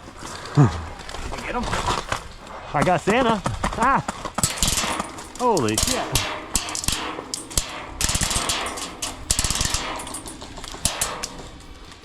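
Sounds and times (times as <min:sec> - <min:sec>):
rustling movement: 0:00.0 - 0:12.0
airsoft guns firing: 0:04.2 - 0:12.0.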